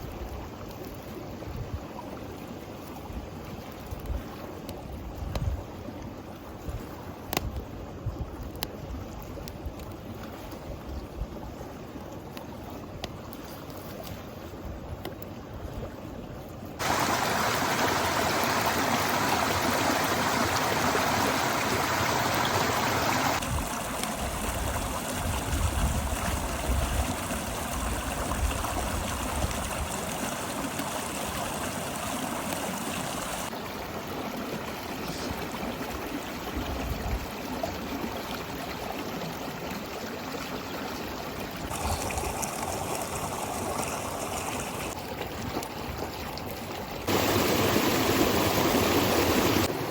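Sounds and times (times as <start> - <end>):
river water rushing: 16.8 - 36.1, 41.7 - 45.0, 47.1 - 49.9.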